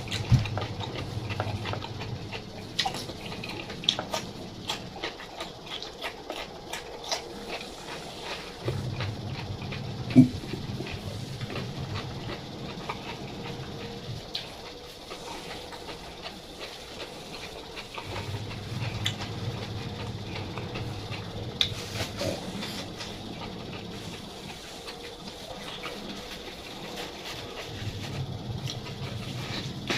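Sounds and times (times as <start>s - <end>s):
person chewing: 0.0s - 29.9s.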